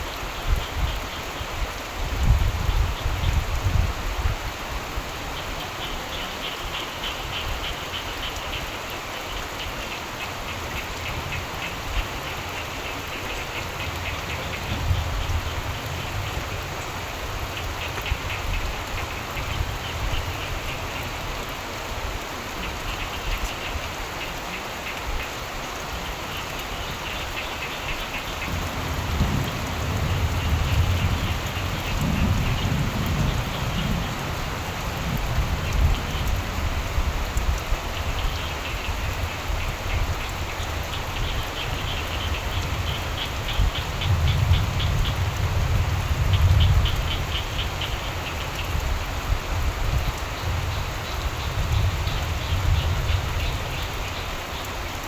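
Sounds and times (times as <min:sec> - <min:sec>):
steady rain falling: 0:00.0 - 0:55.0
frogs calling in trills: 0:05.3 - 0:21.5, 0:22.5 - 0:55.0
low thunder rumbles: 0:28.3 - 0:38.4.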